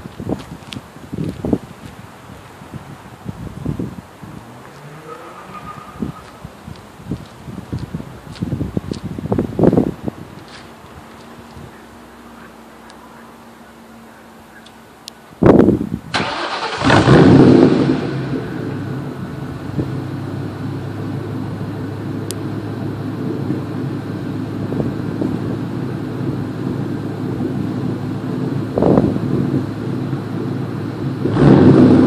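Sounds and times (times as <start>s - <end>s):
car engine starting and idling: 2.3s - 32.0s
engine revving: 4.4s - 6.5s, 16.2s - 24.0s, 28.7s - 32.0s.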